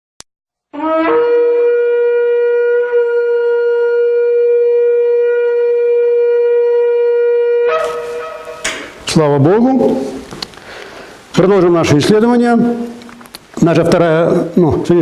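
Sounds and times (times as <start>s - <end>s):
shofar blast: 0.8s - 9.0s.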